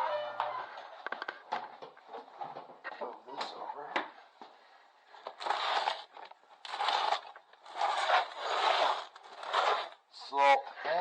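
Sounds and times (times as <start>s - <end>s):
heavy bag dragged across surface: 6.7s - 10.0s.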